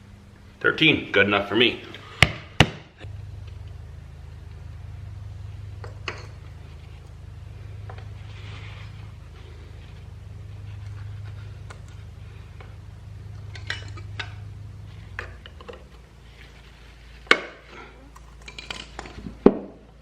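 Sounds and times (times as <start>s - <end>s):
steady low hum: 0.0s - 20.0s
metal parts clinking: 13.4s - 14.4s, 18.1s - 19.3s.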